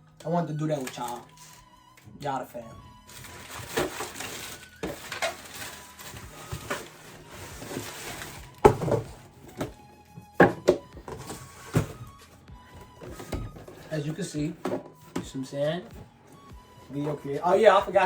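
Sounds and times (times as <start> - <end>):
faint background music: 0.0 - 18.0
packing paper rustling: 0.6 - 1.8, 3.0 - 9.7
cardboard box knocks: 8.6 - 9.8, 10.4 - 12.2.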